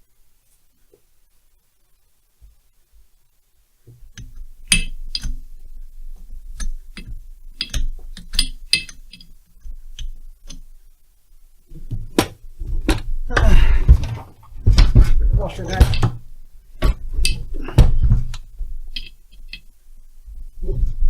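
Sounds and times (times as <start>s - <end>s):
metal parts and tools clinking: 6.6s - 9.3s
heavier rustling and knocking: 11.7s - 19.1s.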